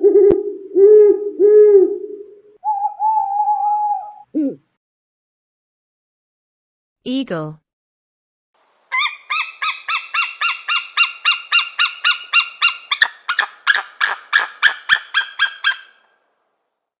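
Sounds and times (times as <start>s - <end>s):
eagle piping chirps: 8.9s - 16.1s.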